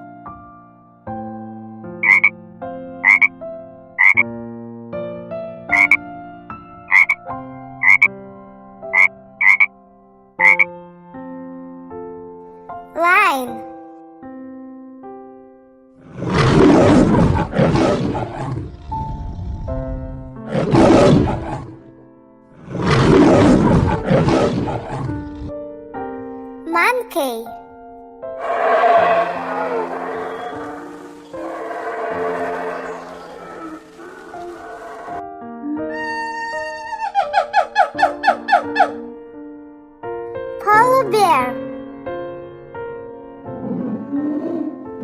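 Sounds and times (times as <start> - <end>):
frog croaking: 2.0 - 2.3, 3.0 - 3.3, 4.0 - 4.2, 5.7 - 6.0, 6.9 - 7.2, 7.8 - 8.1, 8.9 - 9.7, 10.4 - 10.7, 28.8 - 35.2
light background music: 5.4 - 9.7
lion roaring: 16.0 - 19.8, 20.5 - 21.8, 22.6 - 25.5, 28.4 - 35.2, 43.5 - 44.9.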